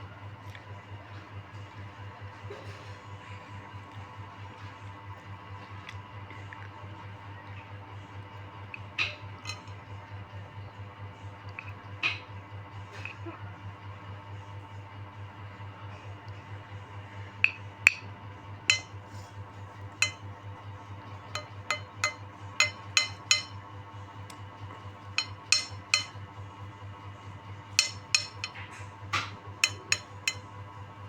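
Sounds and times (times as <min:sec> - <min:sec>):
utensil clinking against a bowl: 0:09.0 - 0:09.8, 0:17.4 - 0:18.1, 0:18.7 - 0:20.5, 0:21.2 - 0:23.6, 0:25.1 - 0:26.2, 0:27.8 - 0:30.6
steady low hum: 0:14.4 - 0:31.0.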